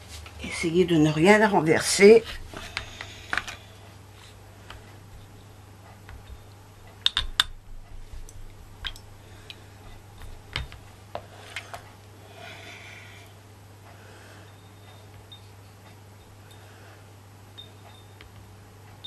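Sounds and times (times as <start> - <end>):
soft rustle: 0.0 - 0.5.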